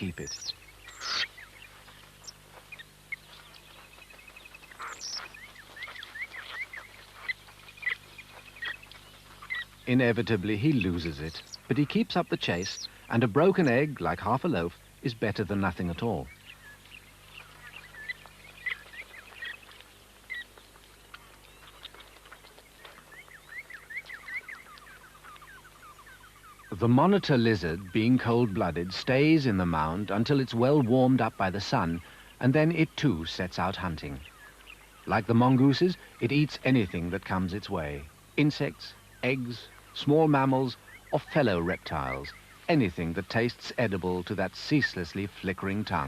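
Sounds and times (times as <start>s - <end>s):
mongooses chirping and squeaking: 0.0s - 14.0s, 16.4s - 20.6s.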